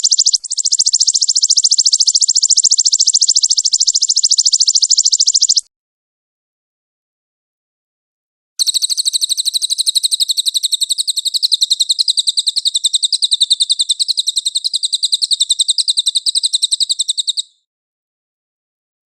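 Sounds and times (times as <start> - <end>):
songbird rapid high trill: 0.0 - 5.7, 8.6 - 17.7.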